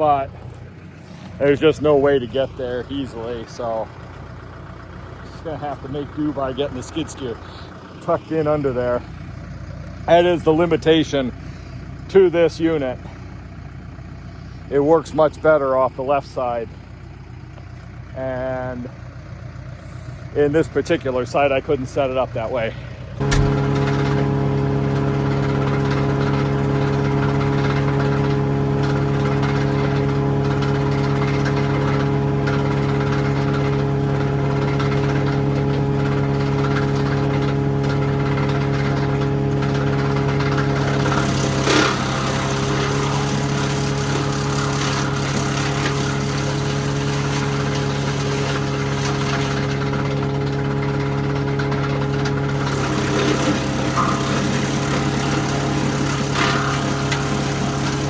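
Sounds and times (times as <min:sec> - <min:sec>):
diesel engine running: 0:00.0 - 0:58.0
clatter: 0:23.2 - 0:58.0.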